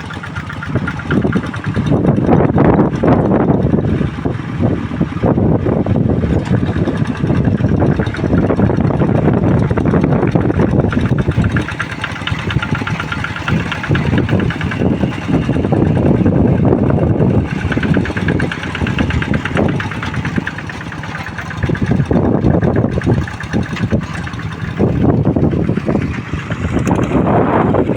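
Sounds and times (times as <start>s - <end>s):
tractor engine running hard: 0.0s - 27.9s.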